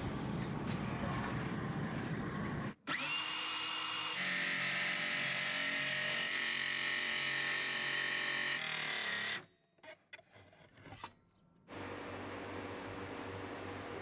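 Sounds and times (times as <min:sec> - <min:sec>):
power tool whining: 0:02.9 - 0:09.5.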